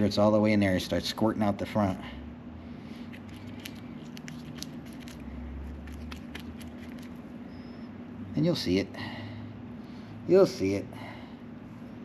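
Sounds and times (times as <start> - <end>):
steady low hum: 0.0 - 12.0
grease squishing: 3.1 - 7.2.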